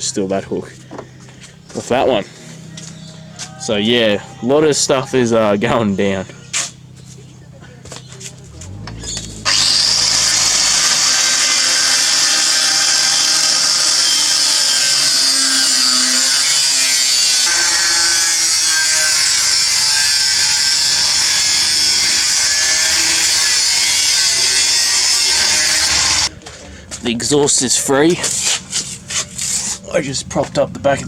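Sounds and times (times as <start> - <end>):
power tool cutting metal pipe: 8.7 - 26.3.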